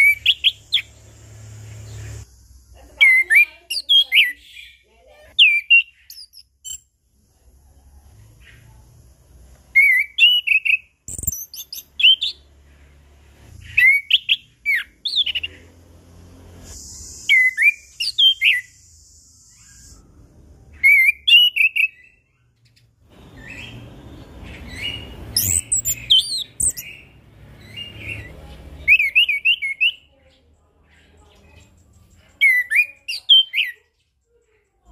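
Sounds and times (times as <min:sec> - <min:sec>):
thrush whistled song: 0:00.0 - 0:02.3, 0:09.7 - 0:12.5, 0:13.6 - 0:15.6, 0:16.6 - 0:22.4, 0:23.1 - 0:30.1.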